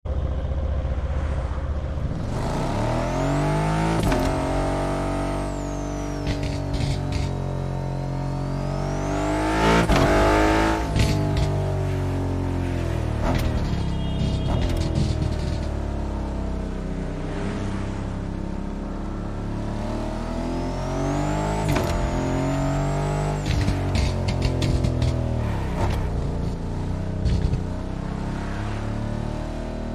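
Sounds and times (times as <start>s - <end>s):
high whine: 0.2s - 12.0s
car engine revving: 0.4s - 29.9s
exhaust crackles and pops: 6.1s - 7.4s, 10.8s - 11.7s, 13.2s - 15.8s, 23.4s - 26.6s, 27.2s - 27.7s.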